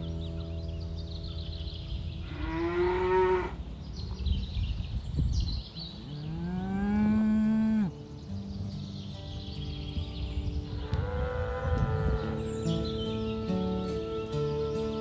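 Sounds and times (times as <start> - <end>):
cattle mooing: 2.2 - 3.6, 6.1 - 8.0, 10.8 - 15.0.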